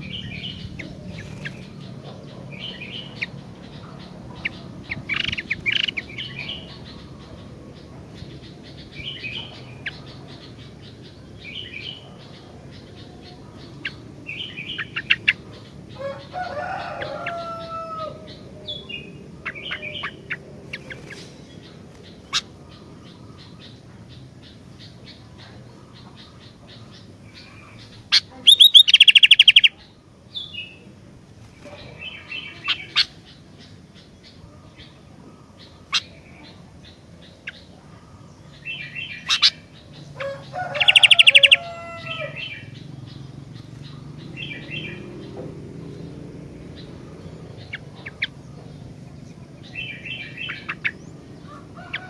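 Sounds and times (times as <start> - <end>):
drawn-out gliding bird call: 0.0 - 52.0
bulbul singing bubbly phrases: 28.1 - 29.8.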